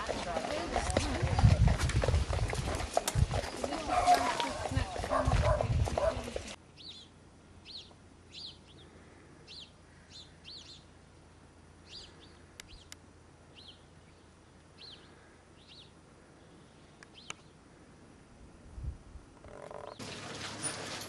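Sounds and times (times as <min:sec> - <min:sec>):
small bird chirping: 0:06.7 - 0:08.9, 0:09.5 - 0:11.0, 0:11.8 - 0:17.6.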